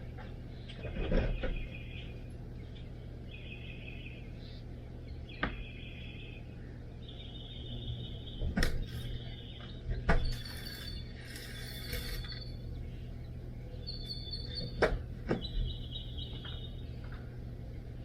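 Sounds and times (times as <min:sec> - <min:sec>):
nestlings begging calls: 0:01.6 - 0:09.8, 0:10.4 - 0:17.0
scraping in vent: 0:10.2 - 0:12.6.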